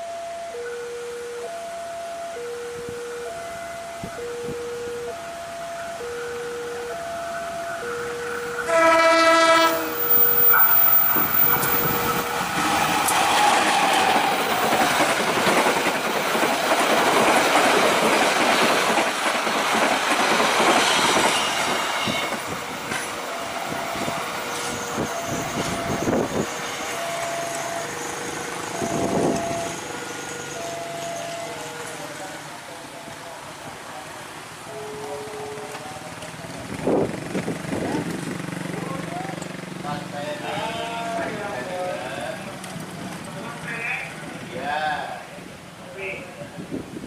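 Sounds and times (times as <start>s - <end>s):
diesel locomotive horn blast: 8.2s - 14.4s, 20.9s - 22.5s, 23.3s - 32.2s, 40.5s - 41.7s
train wheels clattering over rails: 9.7s - 30.5s.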